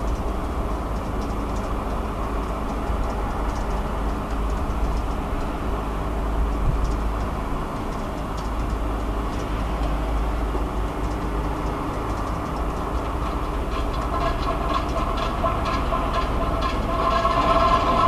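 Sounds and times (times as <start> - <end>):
steady low rumble: 0.0 - 18.0
faint clicks: 0.9 - 5.5, 10.9 - 16.8
metallic whining tones: 12.8 - 18.0.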